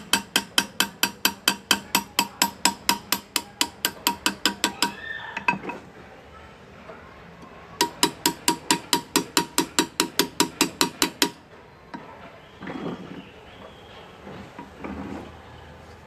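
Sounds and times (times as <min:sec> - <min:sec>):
hammer tapping metal: 0:00.0 - 0:05.8, 0:07.8 - 0:11.4.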